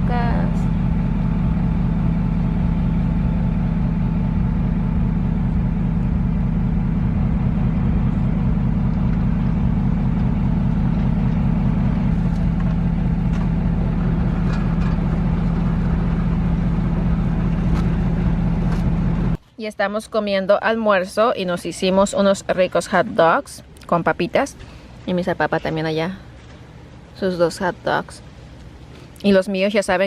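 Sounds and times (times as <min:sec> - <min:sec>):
vehicle engine droning: 0:00.0 - 0:19.4.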